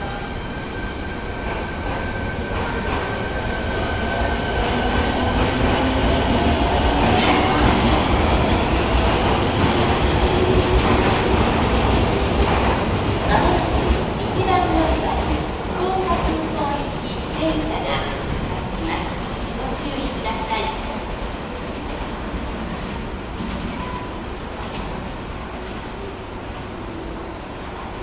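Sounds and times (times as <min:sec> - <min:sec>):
train wheels on rails: 0:00.0 - 0:20.8.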